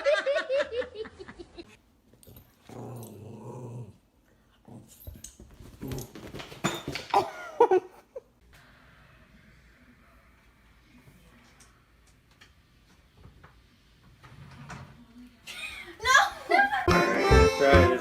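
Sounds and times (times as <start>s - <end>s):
dog growling: 2.7s - 5.0s.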